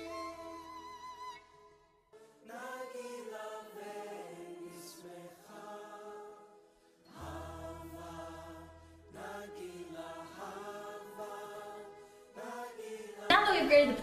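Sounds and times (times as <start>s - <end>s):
choir singing chant notes: 2.2s - 14.0s.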